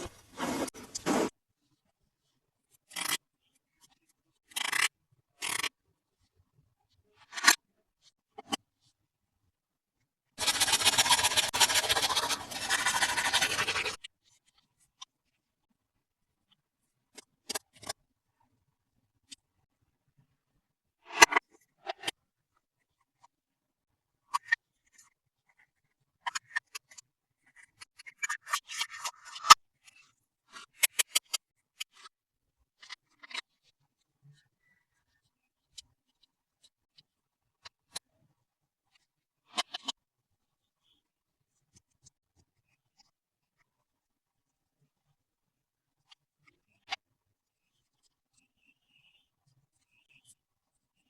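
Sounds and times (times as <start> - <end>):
scraping and rustling: 0.0 - 1.3
toy packaging scraping: 0.0 - 1.3, 10.4 - 14.0.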